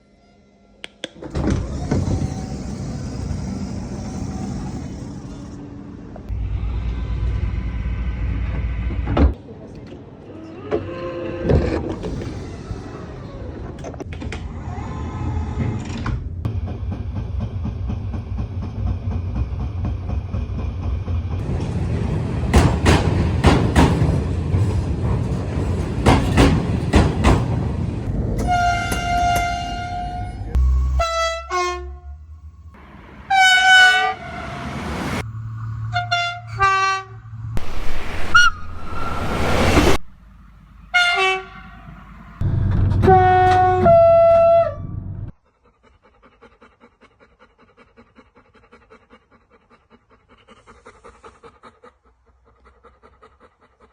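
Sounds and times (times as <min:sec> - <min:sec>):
train rumbling: 0:01.1 - 0:10.4, 0:16.2 - 0:45.4
wheels clicking over rail joints: 0:16.6 - 0:30.4
train horn: 0:28.4 - 0:32.2, 0:33.2 - 0:34.9, 0:35.8 - 0:37.3, 0:40.9 - 0:42.0, 0:43.0 - 0:44.8.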